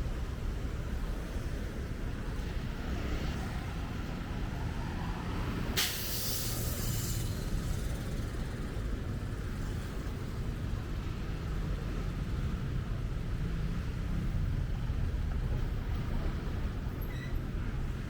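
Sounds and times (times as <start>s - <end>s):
traffic rumble: 0.0s - 18.0s
high hiss: 5.8s - 8.2s.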